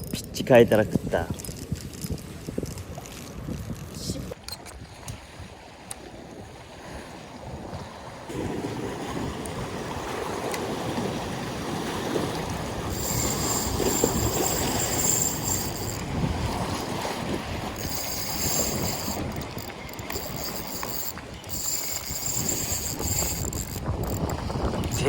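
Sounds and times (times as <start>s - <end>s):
wind on microphone: 0.0s - 25.0s
high buzz: 12.9s - 16.1s, 17.8s - 25.0s.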